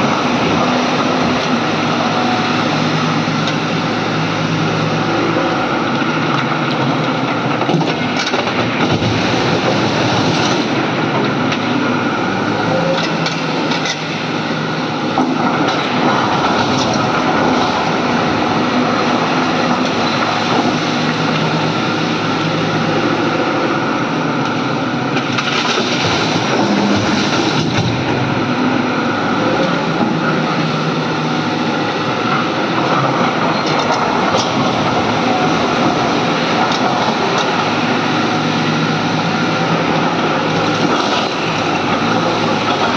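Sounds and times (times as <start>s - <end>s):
excavator diesel engine under load: 0.0s - 42.9s
knocks and clatter: 7.6s - 11.7s.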